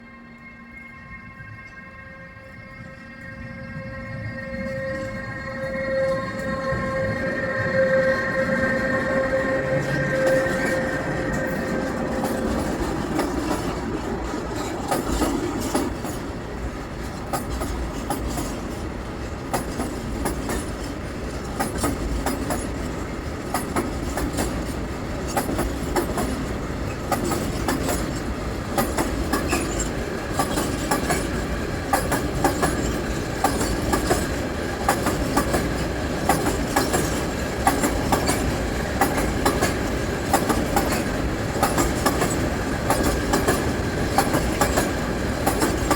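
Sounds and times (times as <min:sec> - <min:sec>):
train wheels clicking over rail joints: 0:09.6 - 0:45.9.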